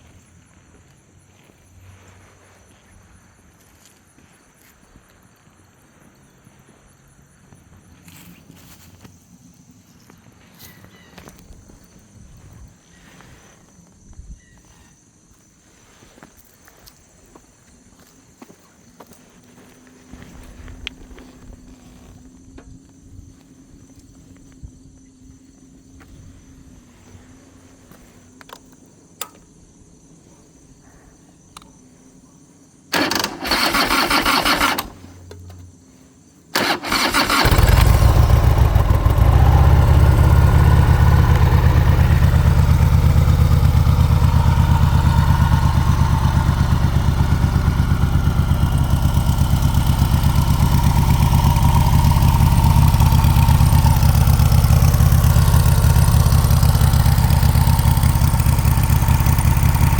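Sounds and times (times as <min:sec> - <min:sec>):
electric starter cranking: 0:32.9 - 0:35.6, 0:36.6 - 0:59.9
motorcycle engine running: 0:36.6 - 0:59.9.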